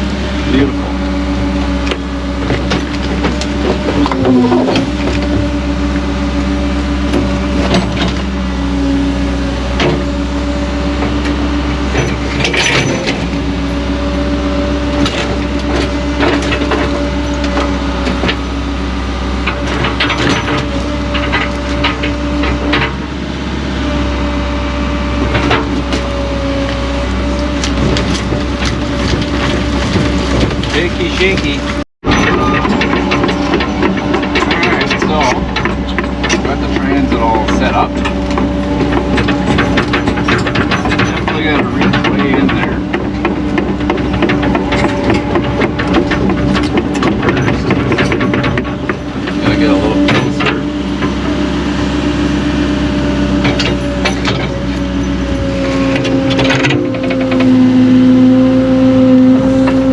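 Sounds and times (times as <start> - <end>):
diesel engine running under load: 0.0 - 59.9
knocks and scrapes: 1.9 - 5.6, 10.9 - 18.5, 19.4 - 23.1, 25.2 - 52.0, 53.2 - 58.6.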